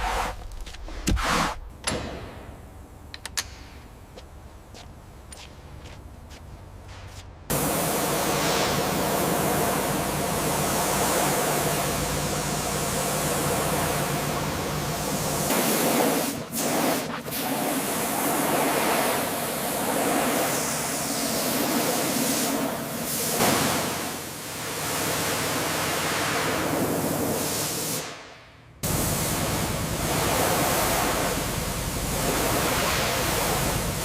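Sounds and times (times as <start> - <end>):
loud steady hiss: 7.5 - 28.2, 28.8 - 34.0.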